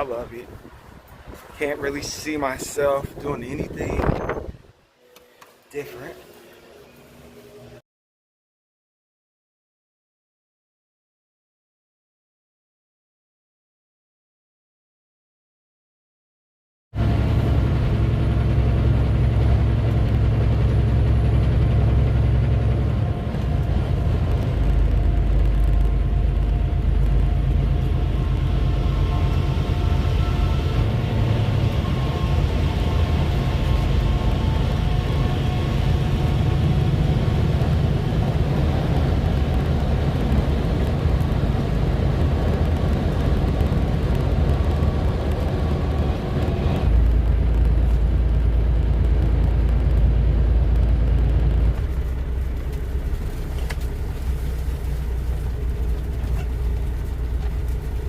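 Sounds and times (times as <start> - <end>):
truck engine and road rumble: 0.0 - 5.0, 17.0 - 58.0
faint engine tones: 17.0 - 58.0.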